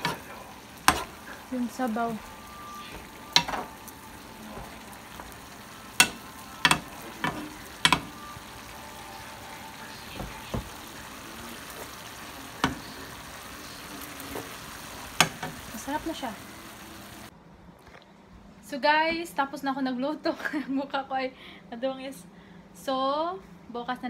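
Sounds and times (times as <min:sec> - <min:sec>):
stir-fry sizzling in pan: 0:00.0 - 0:17.3
metal spoon knocking pan: 0:00.8 - 0:01.1, 0:02.9 - 0:03.7, 0:05.9 - 0:08.2.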